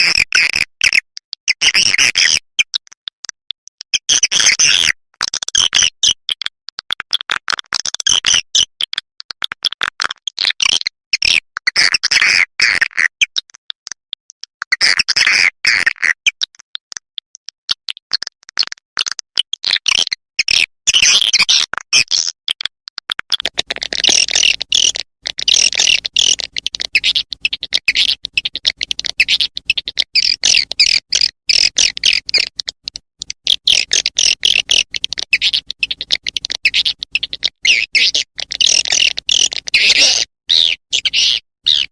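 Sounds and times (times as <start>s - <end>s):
high-pitched bird chirping: 23.4s - 41.9s.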